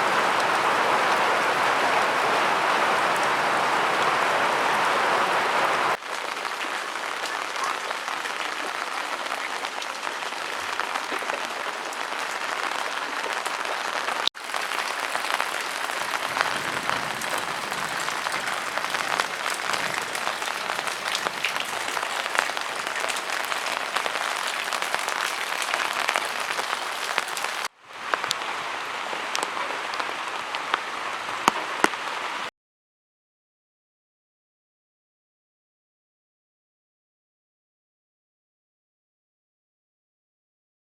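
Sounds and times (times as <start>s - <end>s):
heavy rain falling: 0.0s - 32.5s.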